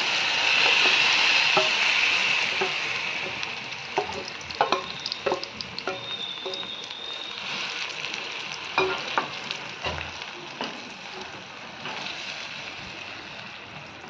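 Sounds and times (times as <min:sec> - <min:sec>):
paste sizzling in hot oil: 0:00.0 - 0:14.0.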